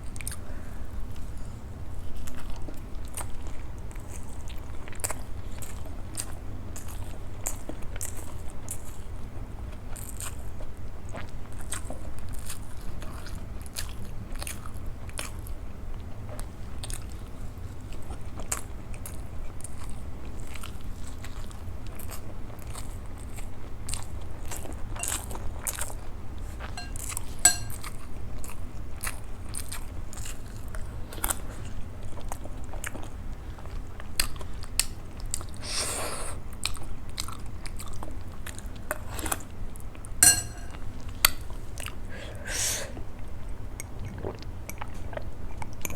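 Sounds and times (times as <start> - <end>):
steady low hum: 24.9 - 29.0, 38.7 - 44.7.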